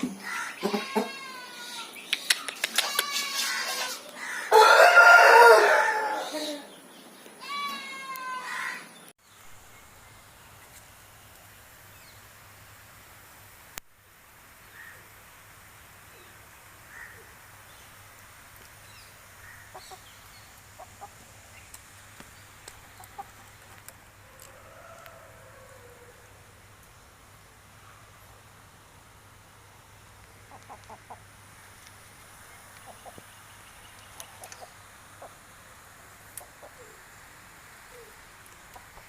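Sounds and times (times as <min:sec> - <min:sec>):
rooster crowing: 0:04.2 - 0:06.7, 0:24.2 - 0:26.4.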